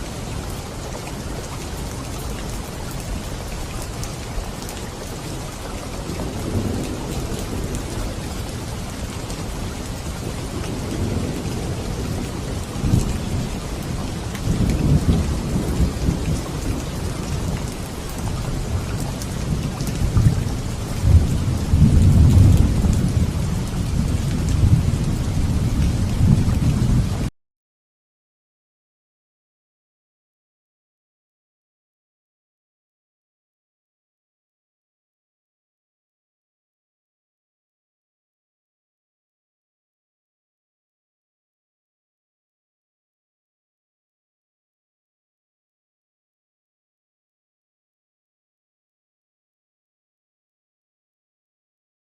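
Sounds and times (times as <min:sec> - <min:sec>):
heavy rain hissing: 0:00.0 - 0:27.3
thunder rumbling: 0:06.0 - 0:27.3.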